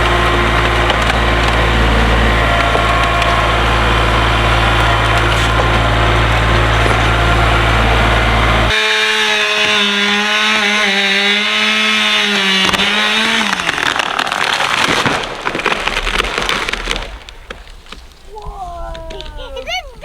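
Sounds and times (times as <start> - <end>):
deep low rumble: 0.0 - 8.7
small engine running at high speed: 0.0 - 14.0
wood cracking and snapping: 0.0 - 19.6.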